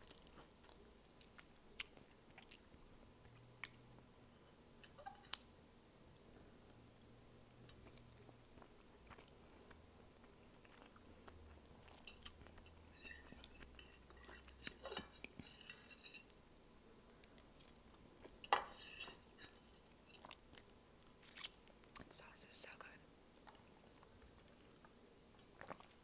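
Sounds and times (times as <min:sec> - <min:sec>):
person chewing noodles: 0:00.0 - 0:03.9, 0:07.6 - 0:15.4, 0:23.4 - 0:26.0
fork scraping and clinking on plate: 0:12.9 - 0:16.3, 0:18.4 - 0:20.3.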